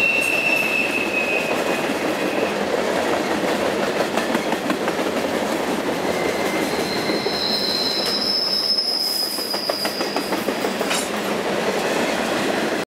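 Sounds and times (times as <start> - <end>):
two-toned wheel squeal: 0.0 - 2.6, 6.1 - 10.4
freight train rolling on rails: 0.0 - 12.8.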